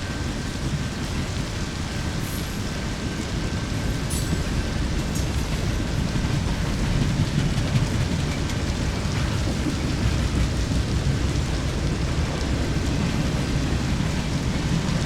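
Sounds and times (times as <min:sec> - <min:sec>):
steady rain falling: 0:00.0 - 0:15.0
deep rumble: 0:03.0 - 0:15.0.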